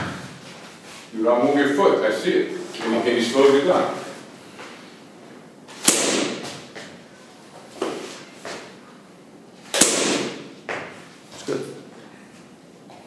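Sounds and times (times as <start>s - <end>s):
sharp smack: 5.8s - 6.6s, 9.7s - 10.5s
soft scuffing rushes: 7.6s - 8.8s.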